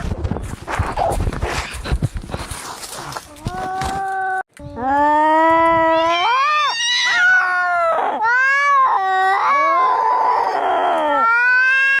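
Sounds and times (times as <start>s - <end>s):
cats yowling in a fight: 5.8s - 12.0s
cat screech: 5.9s - 10.6s.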